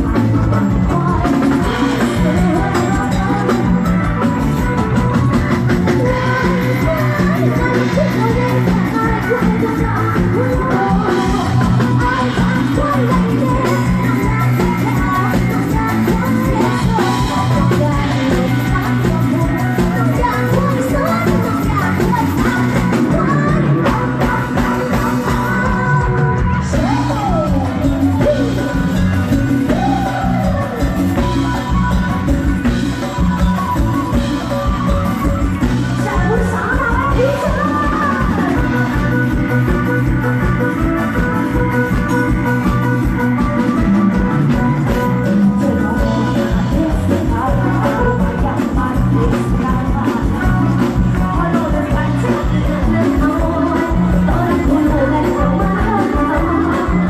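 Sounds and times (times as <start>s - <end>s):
live band music: 0.0s - 57.0s
person singing: 0.0s - 57.0s
steady drum beat: 0.0s - 57.0s.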